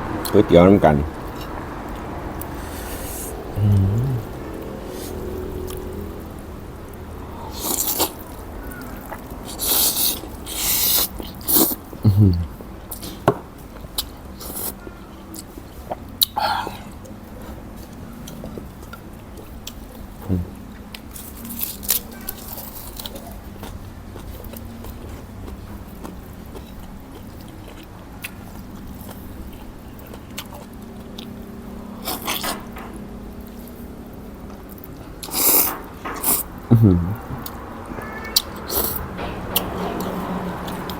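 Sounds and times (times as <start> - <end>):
slurping noodles: 2.4 - 5.2, 7.5 - 8.4, 9.4 - 11.8
person chewing: 2.4 - 5.9, 7.4 - 13.3, 21.5 - 31.4.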